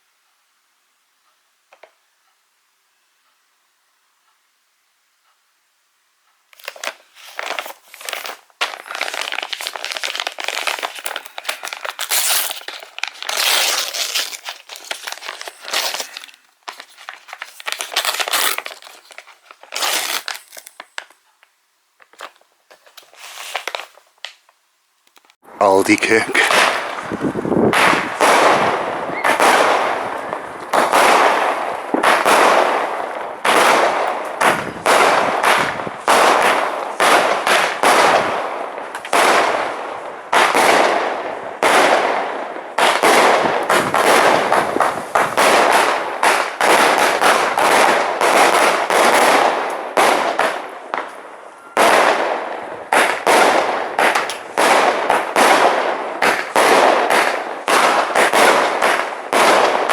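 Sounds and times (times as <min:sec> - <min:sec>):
firework shots banging: 0:25.8 - 0:51.2, 0:51.8 - 0:59.9.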